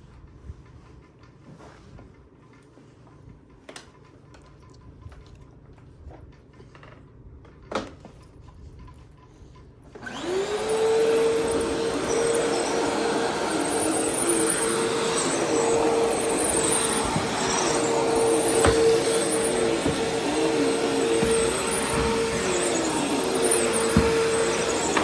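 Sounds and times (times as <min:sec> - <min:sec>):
vacuum cleaner running: 0:10.0 - 0:25.0.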